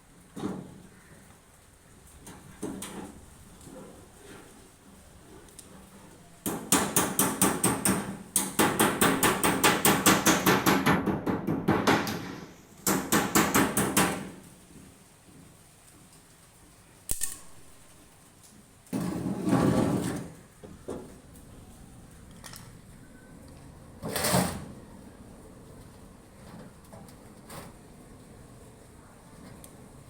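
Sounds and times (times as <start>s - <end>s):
rapid hammering: 6.5s - 14.4s.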